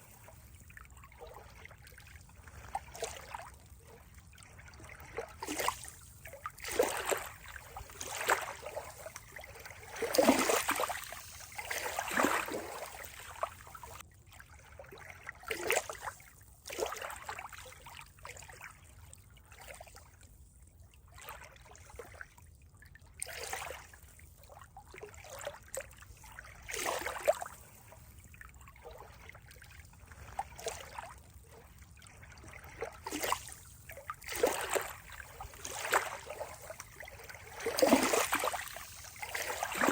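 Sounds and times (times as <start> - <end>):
water splashing: 6.5 - 14.0, 28.9 - 39.9.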